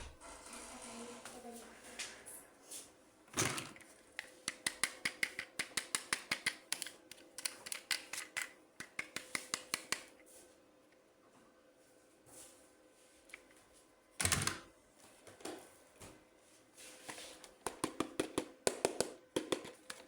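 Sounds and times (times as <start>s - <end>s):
plastic toy parts clicking: 3.5s - 10.1s.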